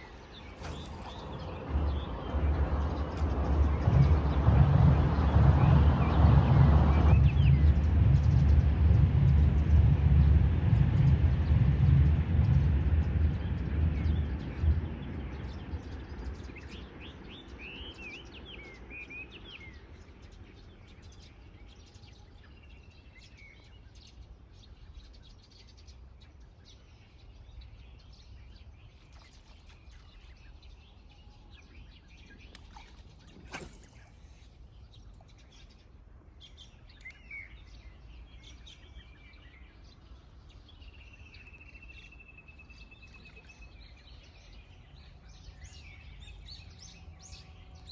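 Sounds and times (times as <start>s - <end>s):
small birds chirping: 0.0s - 4.1s, 14.9s - 47.9s
low rumble: 0.0s - 16.5s.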